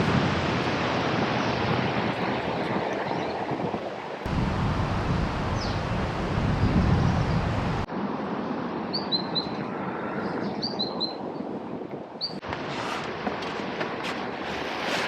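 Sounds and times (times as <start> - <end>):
wind buffeting microphone: 0.0 - 8.1
steady outdoor hiss: 4.2 - 9.0
small birds chirping: 4.8 - 7.8.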